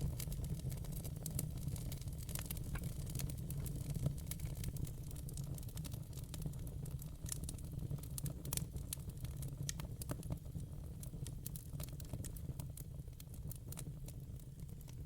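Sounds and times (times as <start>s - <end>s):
logs crackling and popping: 0.0s - 10.4s
low rumble of flames: 0.0s - 15.0s.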